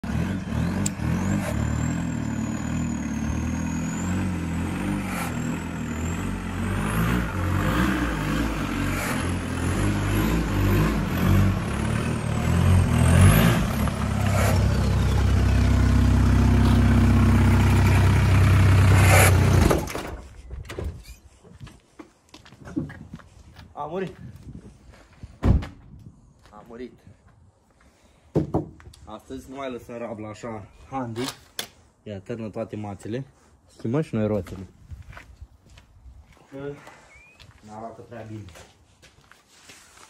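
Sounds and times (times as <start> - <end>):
car engine running: 0.0 - 19.9.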